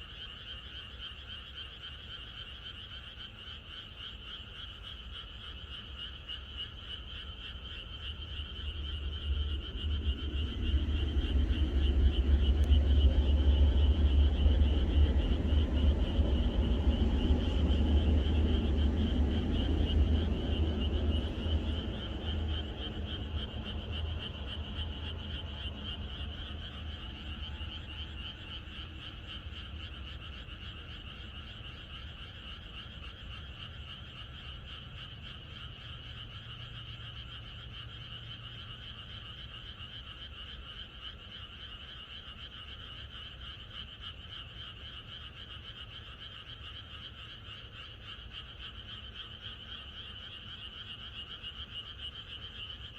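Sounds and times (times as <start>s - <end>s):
frogs trilling: 0.0s - 52.9s
low rumble: 7.7s - 31.2s.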